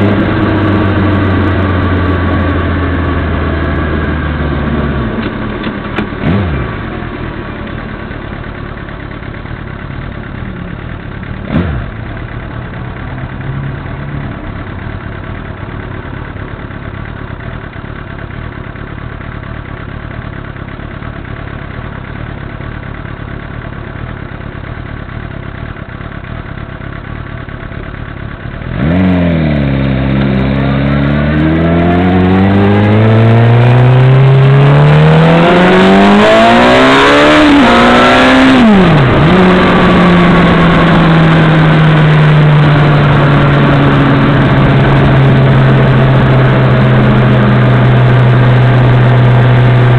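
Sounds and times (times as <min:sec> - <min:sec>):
motorcycle accelerating away: 0:00.0 - 0:05.2, 0:06.2 - 0:07.0, 0:11.4 - 0:12.3, 0:28.5 - 0:49.9
motorcycle engine idling: 0:00.0 - 0:31.4.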